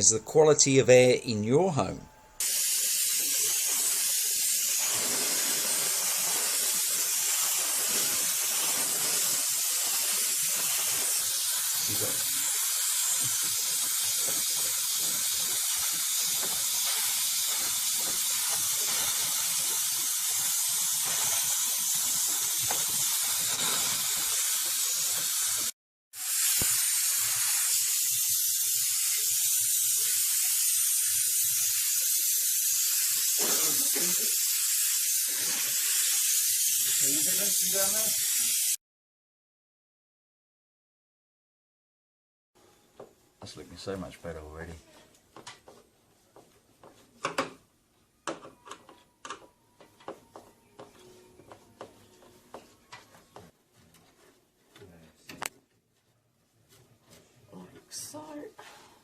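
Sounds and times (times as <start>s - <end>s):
spray jet hissing: 2.4s - 38.8s.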